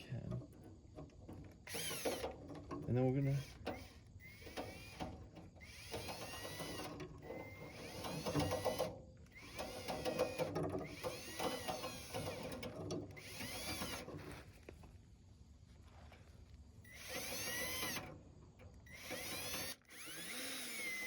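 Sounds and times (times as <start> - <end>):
drill motor whine: 1.6 - 2.4, 3.2 - 14.4, 16.8 - 18.1, 18.8 - 21.0.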